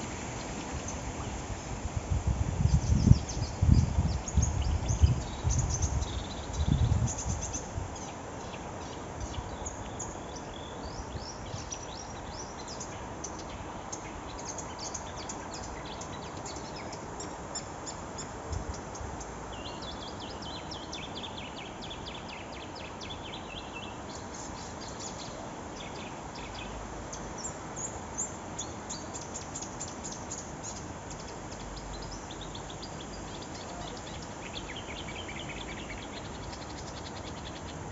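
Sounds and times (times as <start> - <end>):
background hiss: 0.0 - 37.9
wind buffeting microphone: 0.1 - 8.0
songbird chirping: 2.6 - 37.9.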